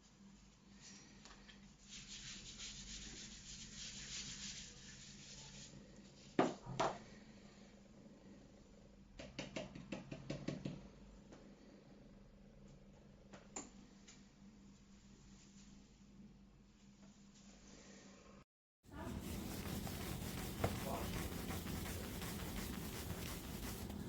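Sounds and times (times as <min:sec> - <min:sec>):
scrubbing on dry-erase board: 0:18.9 - 0:24.0
short scratchy strokes: 0:18.9 - 0:24.0.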